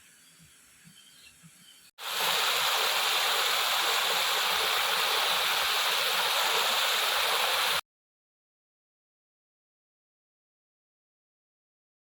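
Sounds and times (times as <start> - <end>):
flowing water rushing: 2.0 - 7.8.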